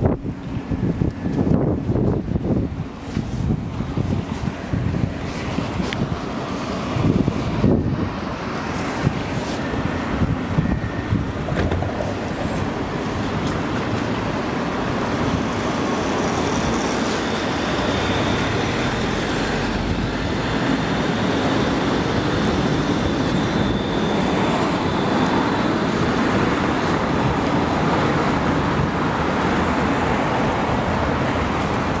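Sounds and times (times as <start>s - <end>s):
tram wheels rumbling on rails: 0.0s - 32.0s
faint high whine: 15.7s - 27.2s.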